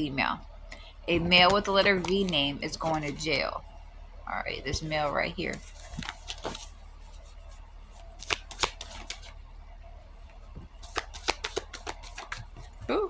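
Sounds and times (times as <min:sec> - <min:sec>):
cards shuffling and snapping: 0:05.5 - 0:06.7, 0:08.0 - 0:09.4, 0:10.6 - 0:12.7.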